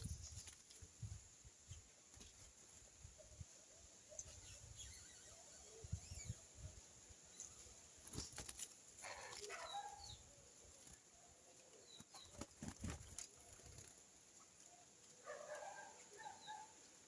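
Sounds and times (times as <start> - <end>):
small birds chirping: 0.0 - 17.0
wing flutters: 8.0 - 9.8, 10.6 - 14.8.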